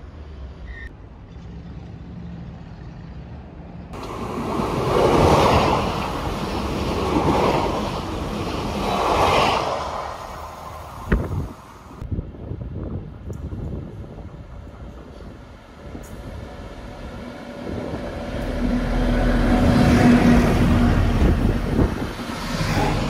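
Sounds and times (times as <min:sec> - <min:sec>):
train rushing past: 0:03.9 - 0:12.0, 0:14.6 - 0:23.0.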